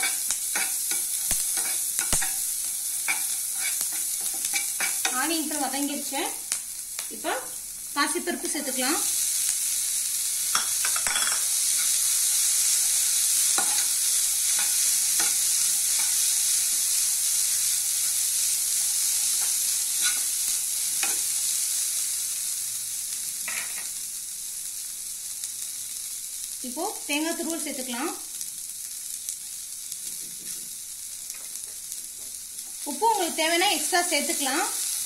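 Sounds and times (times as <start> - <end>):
spatula scraping and knocking pan: 0.0 - 5.2, 13.5 - 16.2
food sizzling in oil: 0.0 - 35.0.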